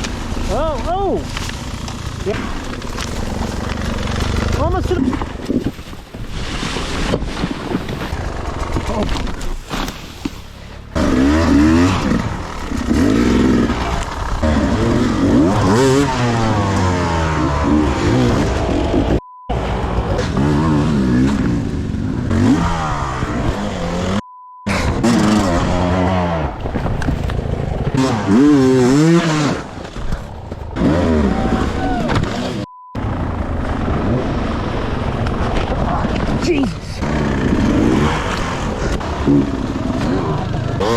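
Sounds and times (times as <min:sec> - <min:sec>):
dirt bike engine revving: 0:00.0 - 0:05.2, 0:10.7 - 0:26.7, 0:27.4 - 0:35.2, 0:36.9 - 0:40.9
rough noisy rumbling: 0:00.0 - 0:40.9
censor bleep: 0:19.2 - 0:19.6, 0:24.2 - 0:24.9, 0:32.6 - 0:33.0.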